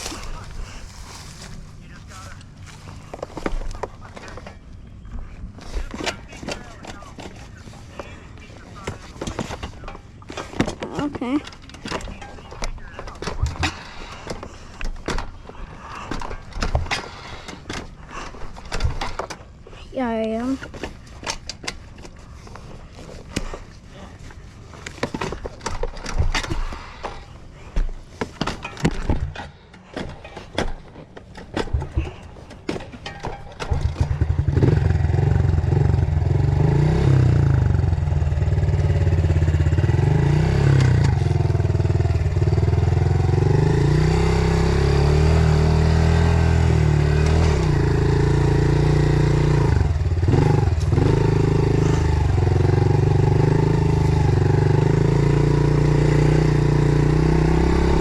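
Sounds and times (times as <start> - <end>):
irregular knocks and clatter: 8.8 - 19.8, 20.6 - 36.0
small off-road engine revving: 33.6 - 58.0.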